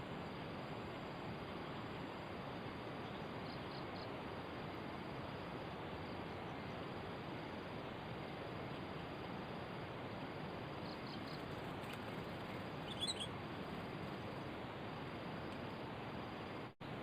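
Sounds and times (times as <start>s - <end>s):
steady background hiss: 0.0s - 17.0s
high bird chirps: 12.8s - 13.3s.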